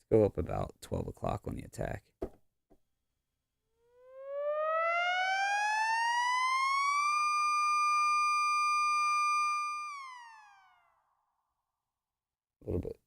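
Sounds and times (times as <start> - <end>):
buzzy synthesizer tone gliding: 3.9 - 11.0.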